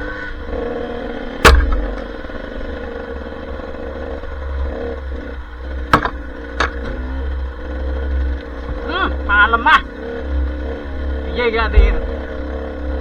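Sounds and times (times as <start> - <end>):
dirt bike engine running: 0.0 - 13.0
sharp knocks: 1.4 - 2.6, 4.6 - 13.0.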